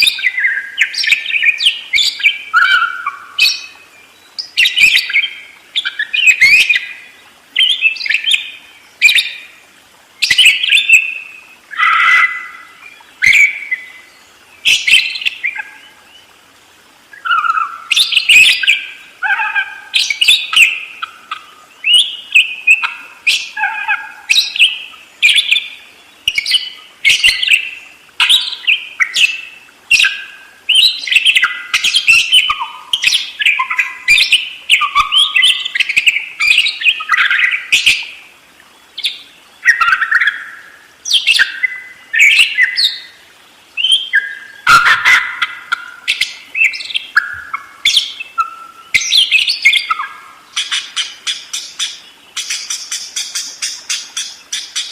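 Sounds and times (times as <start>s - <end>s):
budgerigars chattering: 0.0s - 3.7s, 11.7s - 13.8s, 17.2s - 25.7s, 26.3s - 38.1s, 39.0s - 43.0s, 43.8s - 54.9s.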